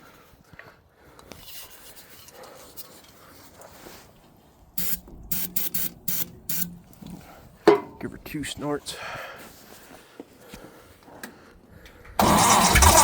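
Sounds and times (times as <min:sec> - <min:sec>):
faint handling noise: 0:00.5 - 0:08.9
aerosol spray hissing: 0:04.8 - 0:06.7.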